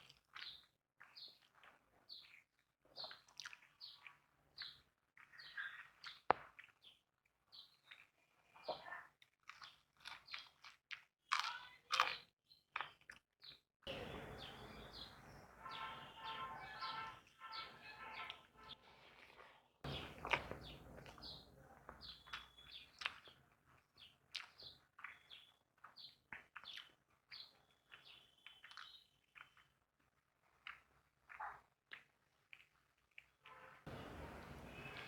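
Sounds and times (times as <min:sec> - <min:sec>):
person chewing food: 0:00.0 - 0:08.6, 0:09.2 - 0:13.6, 0:17.8 - 0:33.5
birds chirping: 0:13.4 - 0:18.8, 0:19.9 - 0:23.4, 0:24.0 - 0:29.6, 0:33.5 - 0:35.0.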